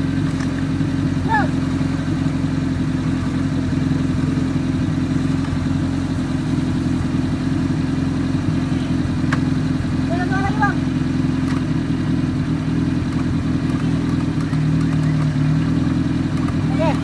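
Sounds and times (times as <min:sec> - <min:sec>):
vehicle engine running: 0:00.0 - 0:17.0
sharp click: 0:13.1 - 0:15.4.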